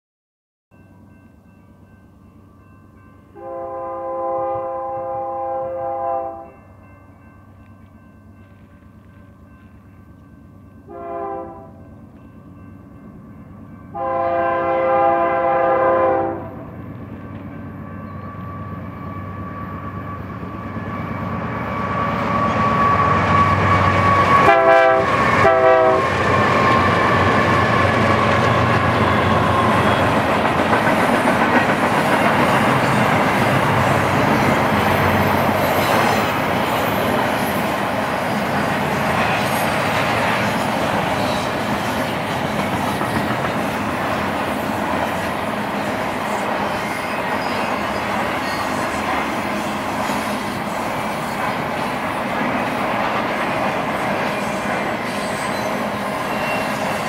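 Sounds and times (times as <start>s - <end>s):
diesel locomotive engines: 0.8s - 57.0s
train horn blasts: 3.4s - 6.6s, 10.9s - 11.9s, 13.9s - 16.7s, 22.0s - 30.2s.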